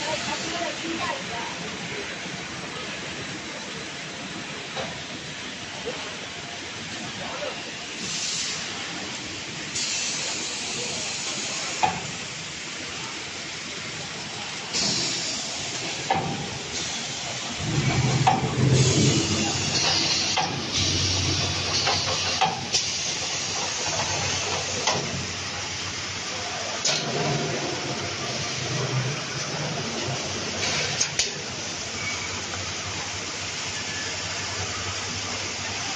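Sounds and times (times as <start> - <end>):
machinery hiss: 7.2 - 12.4, 14.0 - 35.9
machinery clicks and knocks: 17.6 - 25.2.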